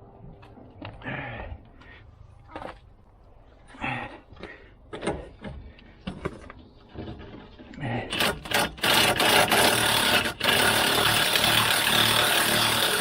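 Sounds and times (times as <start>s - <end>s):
power cutting tool rasping: 8.1s - 13.0s.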